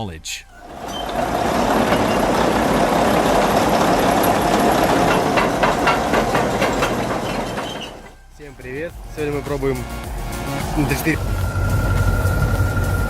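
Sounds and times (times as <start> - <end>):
diesel machinery rumbling: 0.5 - 9.1, 9.8 - 13.0
metallic clanks: 0.6 - 8.3.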